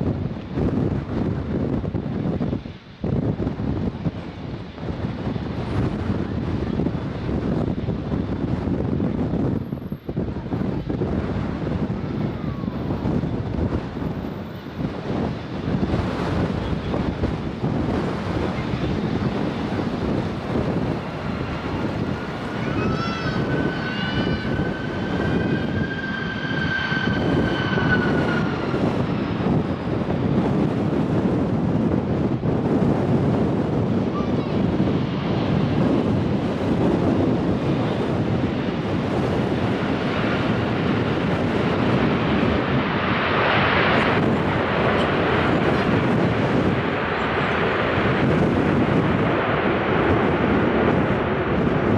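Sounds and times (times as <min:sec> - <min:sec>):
wind buffeting microphone: 0:00.0 - 0:51.9
jet engines whining: 0:12.2 - 0:31.2.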